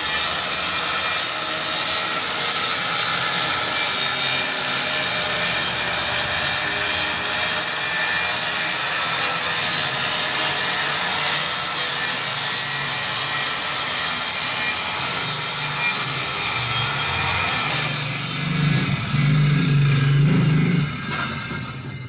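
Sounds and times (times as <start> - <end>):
circular saw cutting plywood: 0.0 - 22.0.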